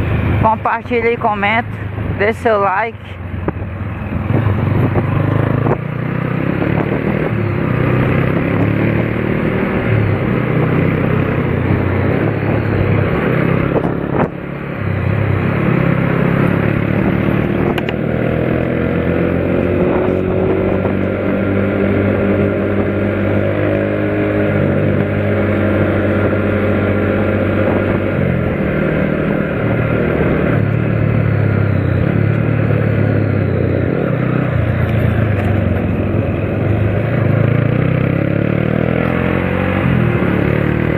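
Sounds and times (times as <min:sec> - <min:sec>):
motorcycles: 0:00.0 - 0:40.9
vehicle engines running: 0:00.0 - 0:40.9.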